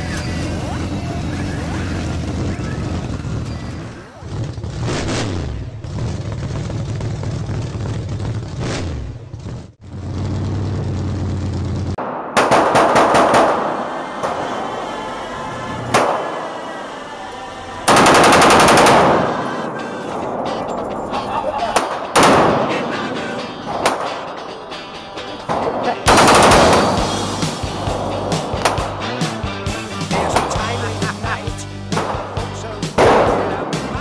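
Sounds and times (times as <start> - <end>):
rapid-fire gunshots: 12.0 - 14.5, 17.9 - 20.5, 21.7 - 24.3, 25.5 - 29.0, 33.0 - 33.9
steady low droning: 13.2 - 21.5, 26.1 - 34.0.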